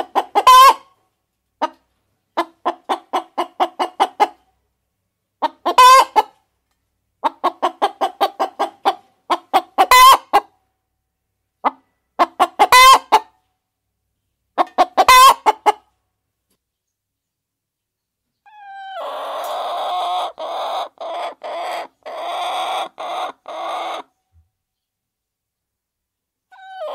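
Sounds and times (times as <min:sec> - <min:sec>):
hen cackling and squawking: 0:00.0 - 0:01.0, 0:02.4 - 0:04.4, 0:05.4 - 0:06.4, 0:07.2 - 0:10.6, 0:11.6 - 0:13.4, 0:14.6 - 0:15.9, 0:18.4 - 0:24.2, 0:26.5 - 0:26.9.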